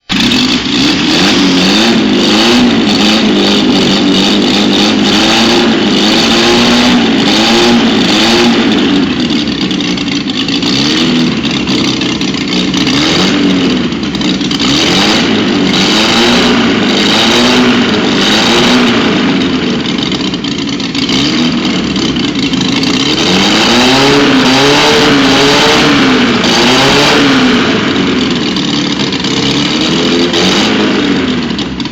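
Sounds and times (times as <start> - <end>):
engine revving with open exhaust: 0.0 - 31.9.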